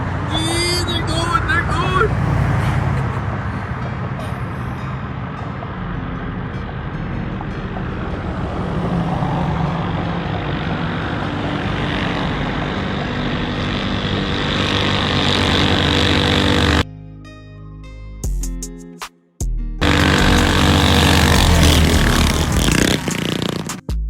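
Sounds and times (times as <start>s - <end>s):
small engine running hard: 0.0s - 16.8s, 19.8s - 23.8s
music: 4.2s - 8.6s, 16.8s - 24.0s.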